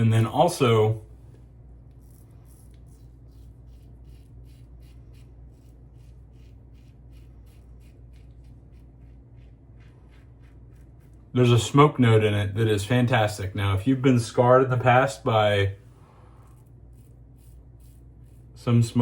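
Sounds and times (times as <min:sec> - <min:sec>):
razor scraping stubble: 0:01.8 - 0:11.9, 0:16.4 - 0:19.0.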